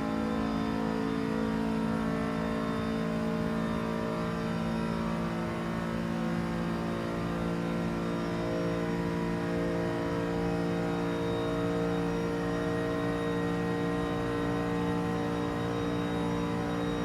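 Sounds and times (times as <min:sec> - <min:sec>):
car engine at high speed: 0:00.0 - 0:17.0.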